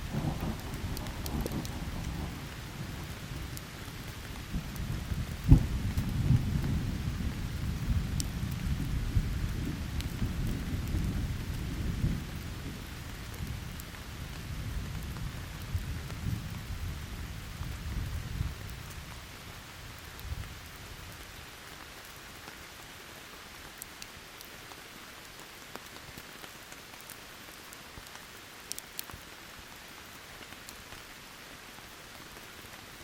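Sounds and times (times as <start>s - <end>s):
thunderclap: 0.0s - 2.4s, 4.5s - 12.2s
thunder rumbling: 0.0s - 13.6s
steady rain: 0.0s - 33.0s.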